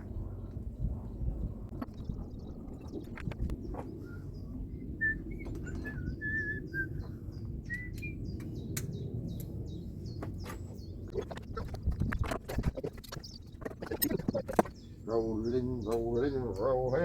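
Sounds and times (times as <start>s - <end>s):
low background rumble: 0.0s - 17.0s
small birds chirping: 0.0s - 17.0s
sharp clicks and knocks: 10.2s - 14.8s.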